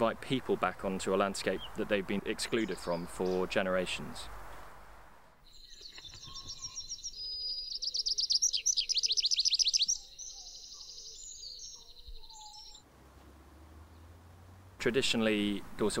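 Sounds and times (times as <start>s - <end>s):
birds chirping and warbling: 0.0s - 4.2s, 5.4s - 15.3s
bird repeated downward-sweeping notes: 5.4s - 14.7s.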